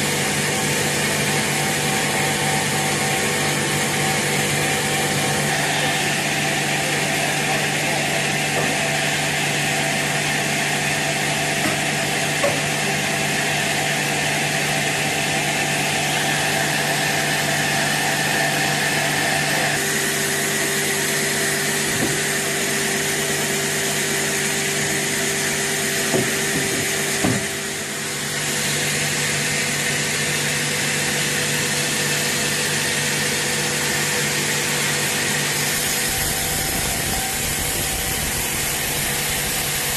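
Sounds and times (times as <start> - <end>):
sawmill saw cutting wood: 0.0 - 39.9
sharp knocks: 26.1 - 27.5.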